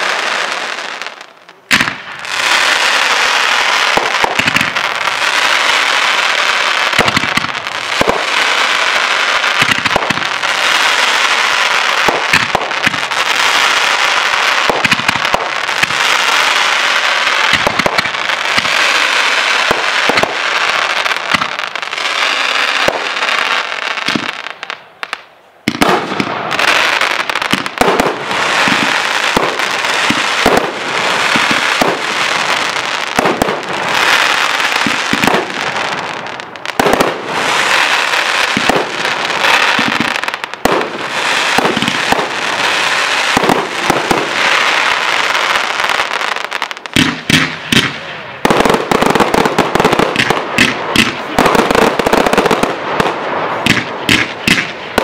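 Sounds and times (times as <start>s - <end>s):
fireworks crackling: 0.0s - 55.0s
firework shells bursting: 46.9s - 55.0s.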